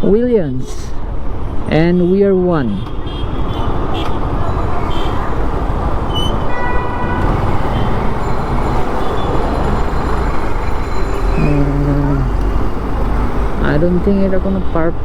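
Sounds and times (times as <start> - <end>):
vehicle horn: 3.0 - 10.5
motorcycle engine: 3.6 - 14.8.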